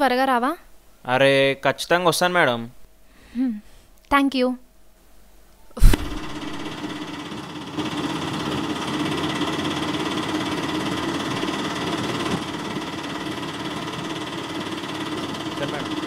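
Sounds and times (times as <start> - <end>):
auto-rickshaw engine running: 6.2 - 16.0.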